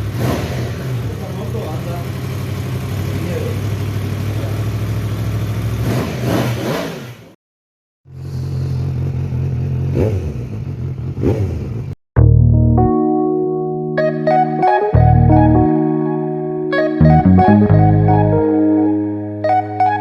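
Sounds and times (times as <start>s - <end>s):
motorcycle engine idling: 0.7s - 5.8s, 8.1s - 11.9s.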